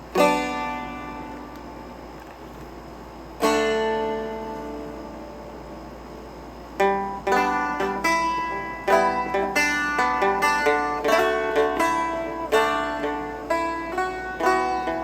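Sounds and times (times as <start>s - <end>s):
dulcimer strummed and picked: 0.0s - 1.8s, 3.4s - 5.5s, 6.8s - 15.0s.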